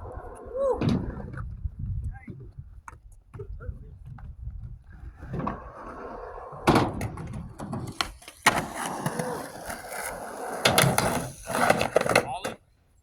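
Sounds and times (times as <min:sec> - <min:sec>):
skateboard rolling on concrete: 0:00.0 - 0:13.0
skateboard clacking on ground: 0:06.6 - 0:12.7.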